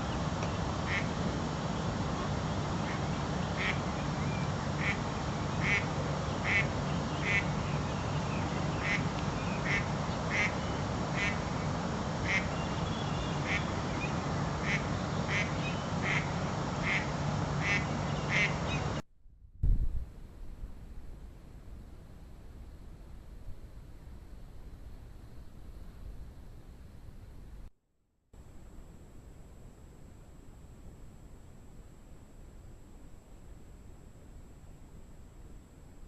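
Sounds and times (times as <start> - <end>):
steady background hum and hiss: 0.0 - 19.0, 19.7 - 27.7, 28.4 - 36.0
bird calling: 2.2 - 19.0.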